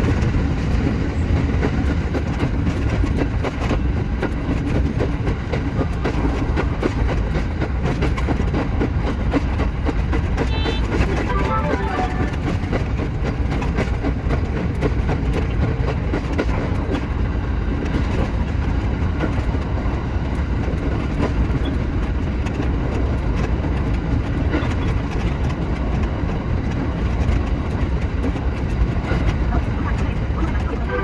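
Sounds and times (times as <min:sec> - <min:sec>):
train wheels rumbling on rail: 0:00.0 - 0:31.0
track clicks and knocks: 0:09.3 - 0:13.0.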